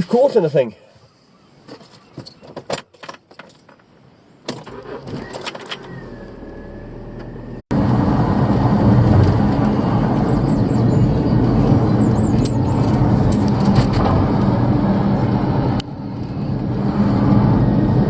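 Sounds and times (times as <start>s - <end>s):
engine starting: 4.5s - 7.5s.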